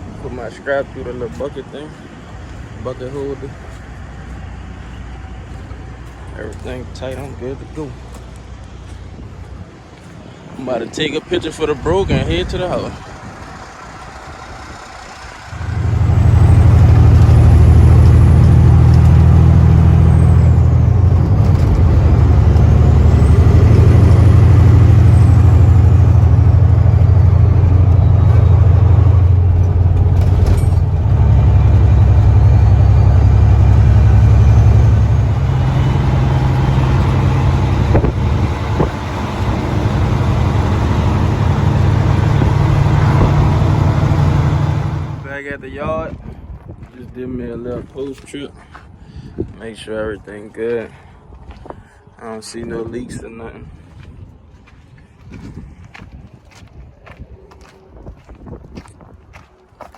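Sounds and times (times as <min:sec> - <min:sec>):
truck diesel engine under load: 0:00.0 - 0:45.5.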